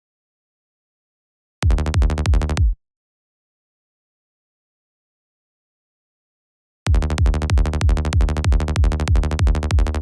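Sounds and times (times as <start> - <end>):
synthesized electronic bass notes: 1.6 - 2.8, 6.9 - 10.0.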